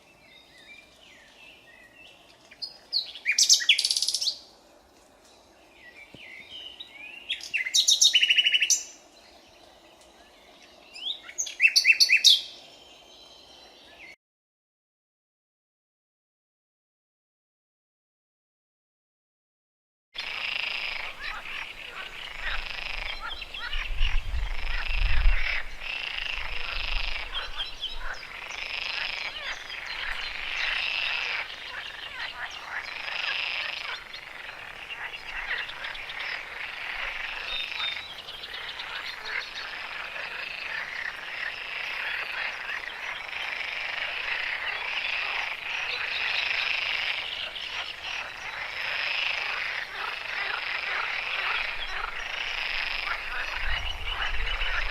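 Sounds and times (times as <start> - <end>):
frogs croaking: 6.0 - 12.8, 20.2 - 54.9.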